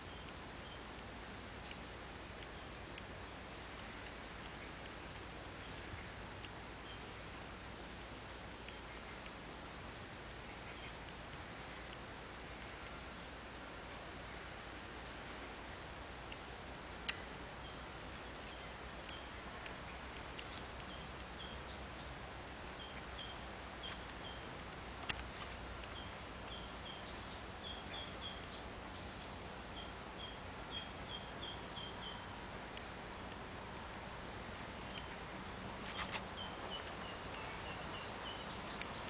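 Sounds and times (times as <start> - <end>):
bird chirping: 0.0 - 2.8, 17.1 - 20.1, 20.8 - 32.3, 35.9 - 39.0
steady hiss: 0.0 - 39.0.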